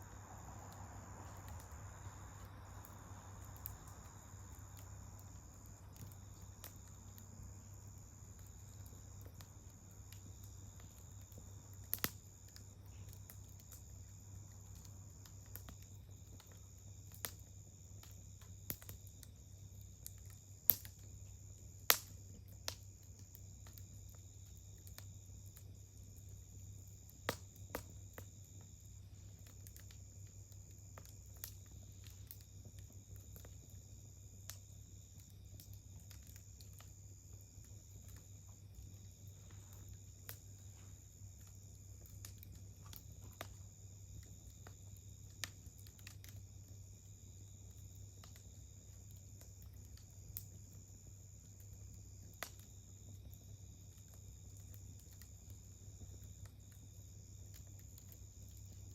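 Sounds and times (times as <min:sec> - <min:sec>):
campfire crackling and popping: 0:00.0 - 0:58.9
high insect trill: 0:00.0 - 0:58.9.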